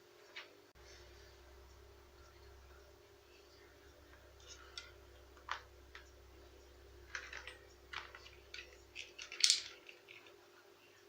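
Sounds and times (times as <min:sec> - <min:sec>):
small parts clicking and tapping: 0:04.4 - 0:06.2, 0:07.1 - 0:10.4.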